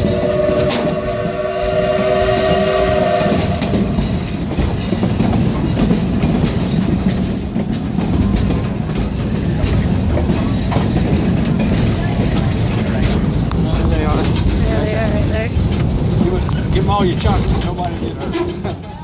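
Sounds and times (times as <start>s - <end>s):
train whistle chord: 0.0s - 4.1s
rumble of moving train: 0.0s - 19.0s
train cars clicking on rails: 0.0s - 19.0s.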